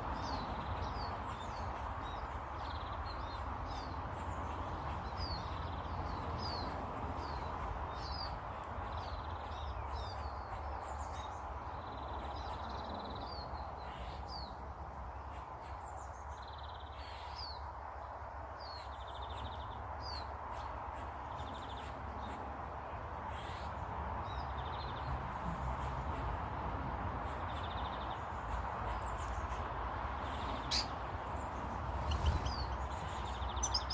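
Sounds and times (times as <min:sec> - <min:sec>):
small birds chirping: 0:00.0 - 0:26.5, 0:27.2 - 0:33.9
buzzy bird trills: 0:31.9 - 0:33.9.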